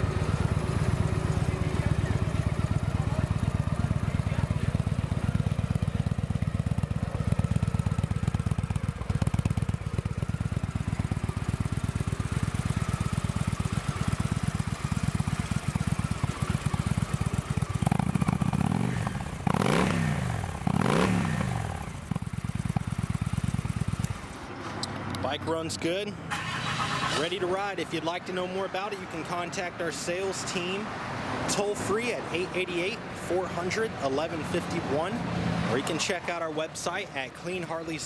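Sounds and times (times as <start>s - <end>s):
motorcycle engine idling: 0.0s - 24.4s
motorcycle engine revving: 0.0s - 24.4s.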